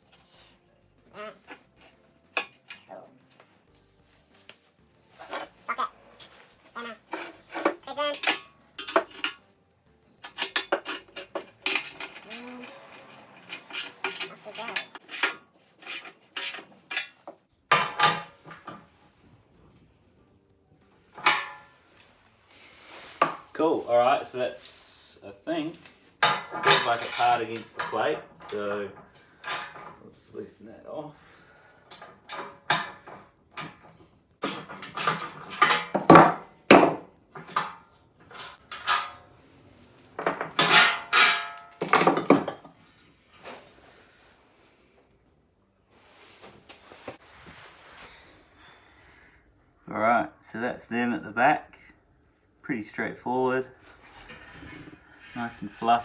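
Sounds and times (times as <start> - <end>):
socket and spanner clinking: 6.2 - 9.5, 10.2 - 18.8, 21.2 - 22.1, 31.9 - 42.7.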